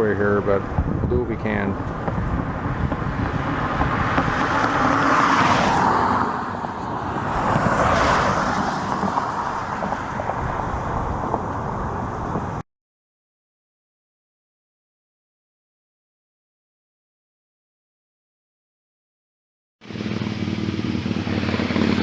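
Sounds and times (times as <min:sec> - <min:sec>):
steady low rumble: 0:00.0 - 0:04.6
vehicles passing on highway: 0:00.0 - 0:12.6, 0:19.8 - 0:22.0.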